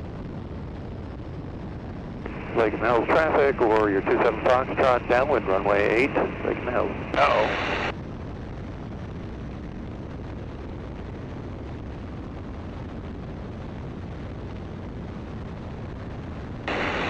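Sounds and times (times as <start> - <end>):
biplane engine drone: 2.2 - 7.9, 16.6 - 17.0.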